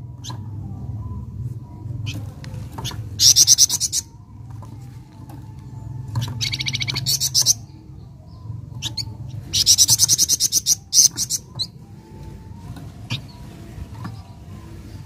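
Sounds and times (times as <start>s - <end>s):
steady low hum: 0.0s - 15.0s
songbird singing rapid trills: 2.8s - 4.3s, 5.8s - 12.3s.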